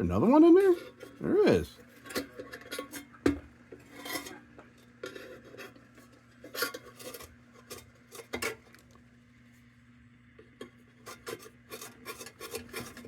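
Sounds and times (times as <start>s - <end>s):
scraping and rasping metal: 3.8s - 4.4s, 5.0s - 8.3s, 11.0s - 13.0s.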